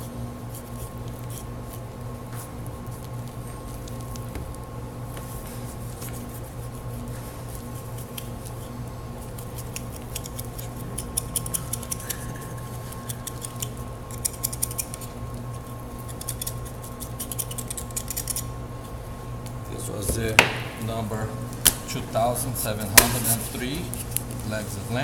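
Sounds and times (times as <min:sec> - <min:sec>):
room hum: 0:00.0 - 0:25.0
knife scraping bone: 0:00.4 - 0:01.9, 0:06.2 - 0:18.5.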